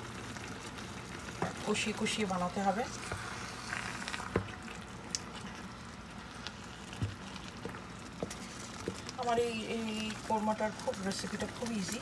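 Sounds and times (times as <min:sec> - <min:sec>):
wooden spatula stirring: 0:06.5 - 0:12.0.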